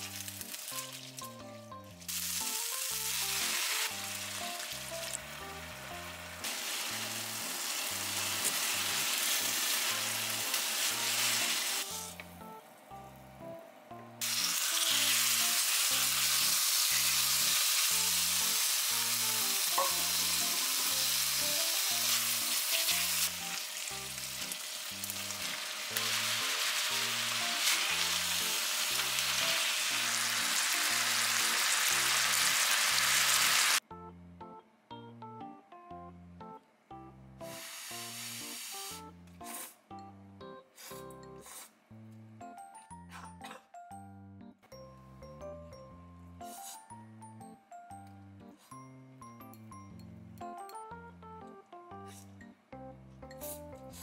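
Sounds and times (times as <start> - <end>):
food sizzling in a frying pan: 0.0 - 12.0, 14.2 - 33.8, 37.4 - 39.0.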